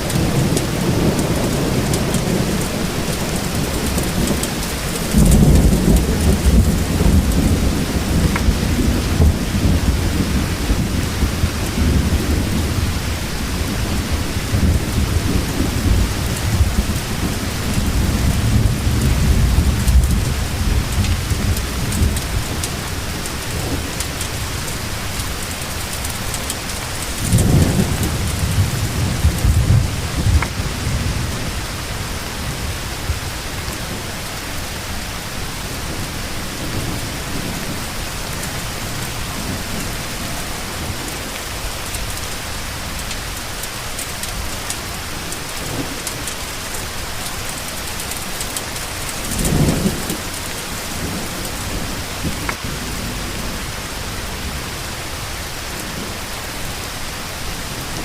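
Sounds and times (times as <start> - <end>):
rolling thunder: 0.0 - 34.3, 48.5 - 54.8
heavy rain falling: 0.0 - 58.0.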